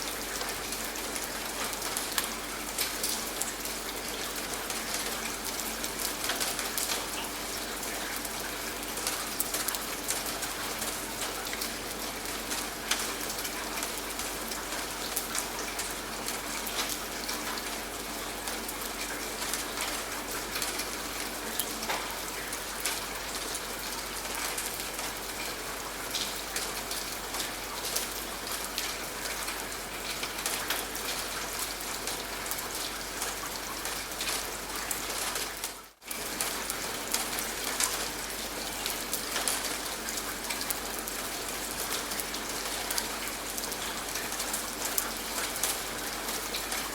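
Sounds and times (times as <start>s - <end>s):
rain falling: 0.0s - 46.9s.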